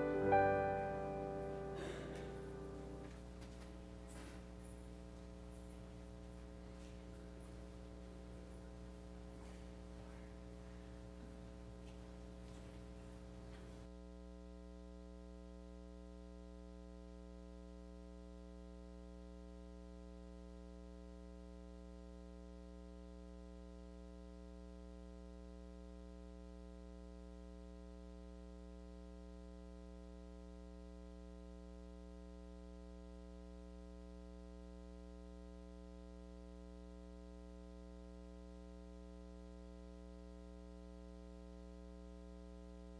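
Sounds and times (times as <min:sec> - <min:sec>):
electronic keyboard sustained chord: 0:00.0 - 0:03.3.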